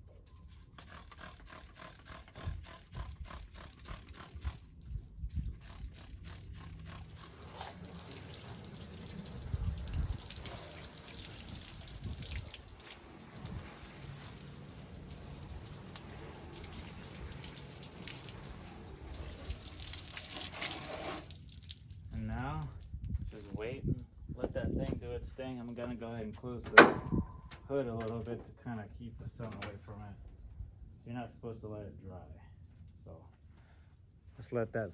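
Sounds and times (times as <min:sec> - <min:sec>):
steady hissing spray: 0:05.6 - 0:21.3.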